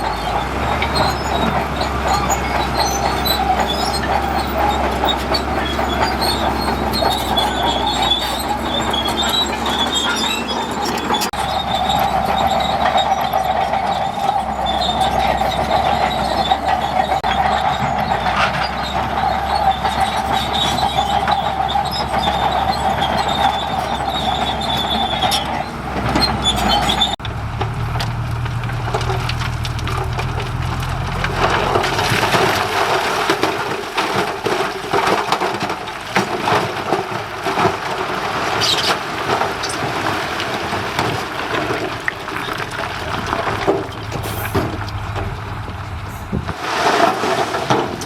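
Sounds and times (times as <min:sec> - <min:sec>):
high squeal from running gear: 0:00.0 - 0:27.2
diesel engine droning: 0:00.0 - 0:36.2, 0:39.0 - 0:46.7
tracks clanking and rattling: 0:00.0 - 0:48.0.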